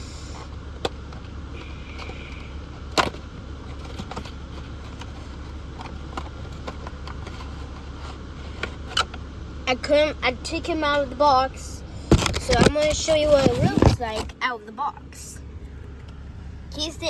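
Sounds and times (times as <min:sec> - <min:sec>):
car cabin drone: 0:00.0 - 0:17.0
handling clicks and taps: 0:00.8 - 0:09.2.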